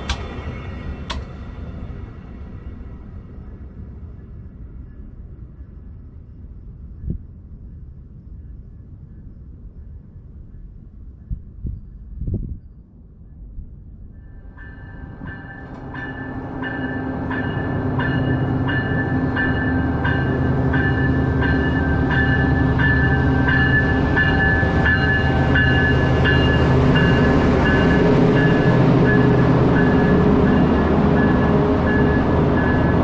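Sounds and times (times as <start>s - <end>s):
locomotive and train pulling in: 0.0s - 11.2s, 12.7s - 33.0s
bell ringing: 14.5s - 33.0s.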